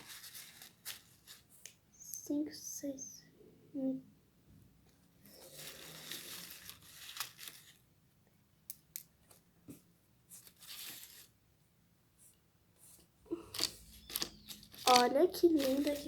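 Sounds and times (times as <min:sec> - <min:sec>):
plastic bag rustling and crinkling: 0:00.0 - 0:01.5, 0:05.3 - 0:07.8, 0:13.5 - 0:16.0.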